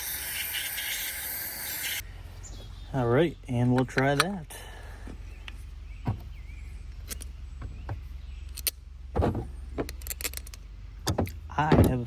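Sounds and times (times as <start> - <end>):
metal parts clicking and knocking: 9.8 - 12.0.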